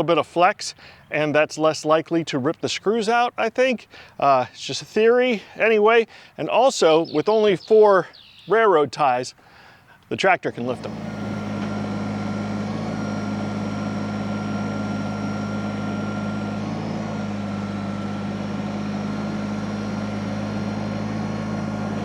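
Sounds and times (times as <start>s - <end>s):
tractor engine running: 10.5s - 22.0s.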